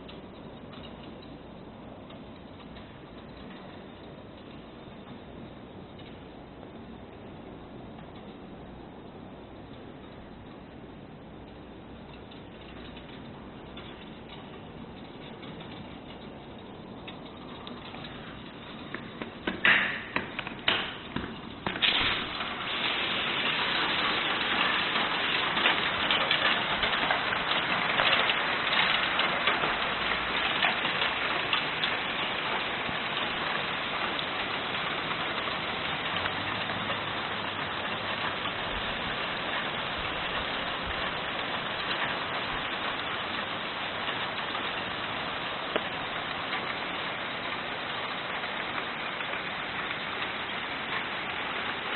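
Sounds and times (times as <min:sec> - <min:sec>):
hail and rain clattering: 0:12.0 - 0:51.9.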